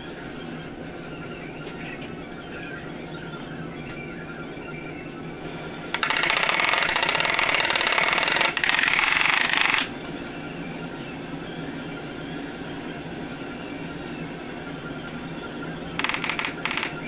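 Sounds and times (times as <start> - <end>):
steady background hum: 0.0 - 17.0
power tool rattling: 6.0 - 9.9, 16.0 - 17.0.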